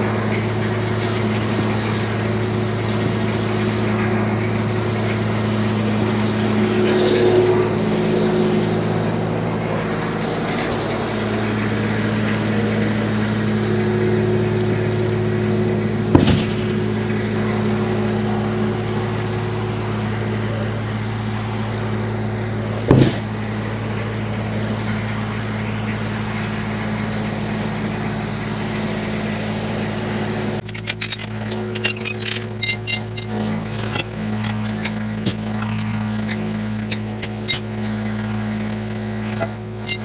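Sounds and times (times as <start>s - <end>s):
tractor engine running: 0.0s - 40.0s
sharp knocks: 16.1s - 17.2s, 22.9s - 23.4s.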